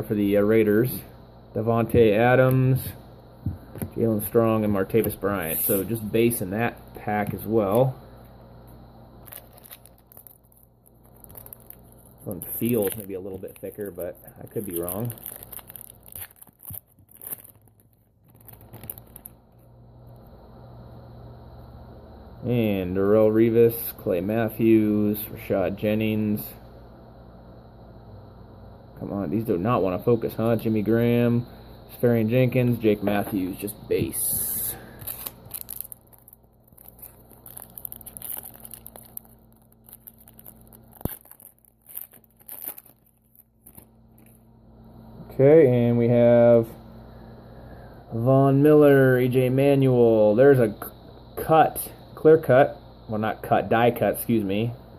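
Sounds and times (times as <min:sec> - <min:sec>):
low steady hum: 0:00.0 - 0:54.9
wrapper crinkling: 0:09.2 - 0:19.6, 0:34.9 - 0:44.5.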